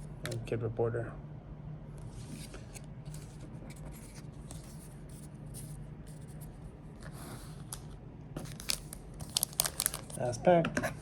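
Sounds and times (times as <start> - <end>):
low steady hum: 0.0 - 11.0
cards sliding and scratching: 2.0 - 7.8.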